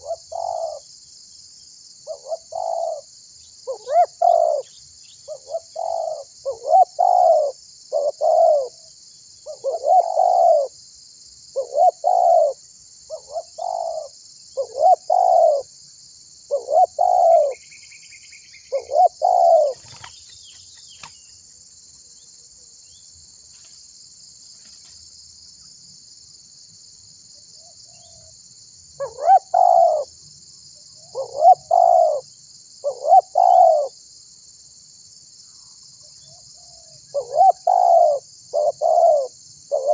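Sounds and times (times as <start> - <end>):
dove cooing: 0.0 - 0.8, 2.0 - 8.8, 9.4 - 10.8, 11.6 - 15.7, 16.5 - 17.6, 18.7 - 20.3, 29.0 - 30.1, 31.1 - 32.2, 32.8 - 33.9, 37.1 - 39.9.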